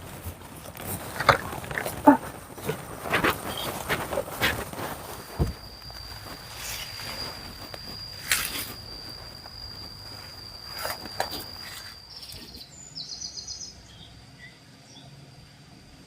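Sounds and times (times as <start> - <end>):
rustling thumps: 0.0 - 12.1
rapidly pulsing trills: 0.0 - 13.0
high-pitched insect whine: 0.0 - 14.6
faint bird chirps: 3.3 - 4.3, 5.0 - 15.2.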